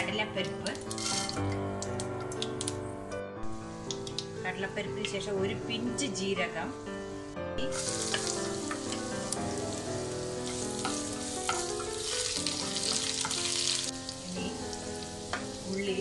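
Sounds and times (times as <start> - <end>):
food sizzling in hot oil: 0.6 - 1.5, 6.2 - 16.0
spatula scraping a pan: 0.9 - 1.4.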